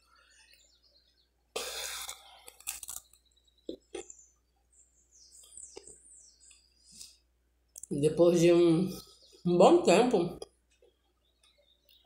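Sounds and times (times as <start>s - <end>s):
crunch of biting toast: 1.6s - 4.1s.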